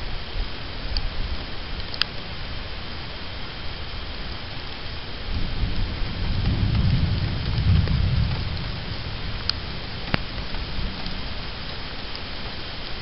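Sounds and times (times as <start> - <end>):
rain hissing: 0.0 - 13.0
thunder rumbling: 3.8 - 13.0.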